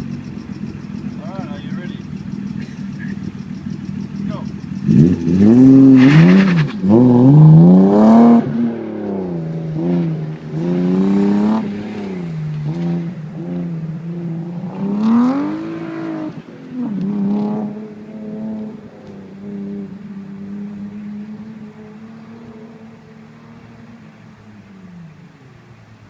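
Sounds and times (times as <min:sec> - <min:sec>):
car engine revving and exhaust: 0:00.0 - 0:26.0.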